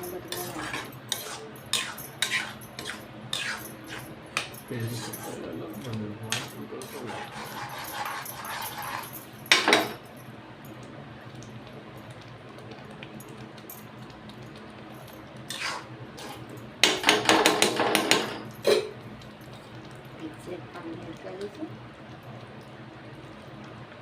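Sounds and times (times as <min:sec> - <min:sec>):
metal utensils knocking on a pan: 0:09.5 - 0:10.0, 0:16.8 - 0:18.9.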